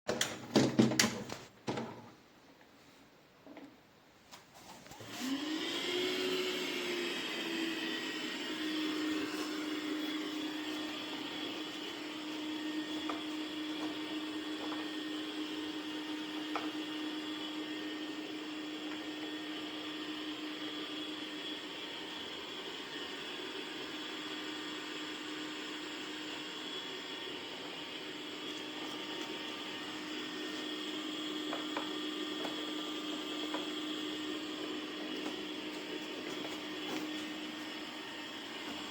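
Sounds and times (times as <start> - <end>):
robot vacuum suction motor whine: 5.0 - 38.9.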